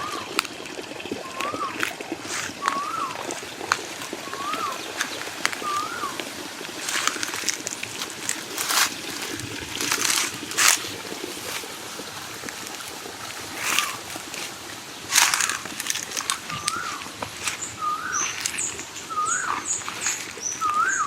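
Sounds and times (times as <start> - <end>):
bird whistling: 1.2 - 1.8, 2.6 - 3.2, 4.2 - 6.2, 16.4 - 21.0
footsteps on dry leaves: 2.2 - 21.0.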